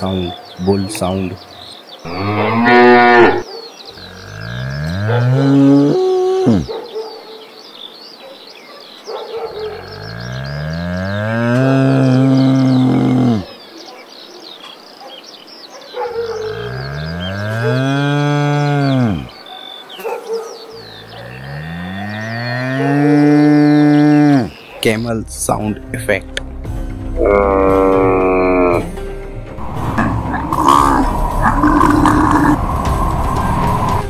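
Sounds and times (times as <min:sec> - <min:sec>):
bull mooing: 0:02.1 - 0:03.4, 0:04.0 - 0:06.7, 0:09.8 - 0:13.5, 0:16.5 - 0:19.3, 0:21.0 - 0:24.5, 0:27.2 - 0:28.9, 0:30.0 - 0:32.6.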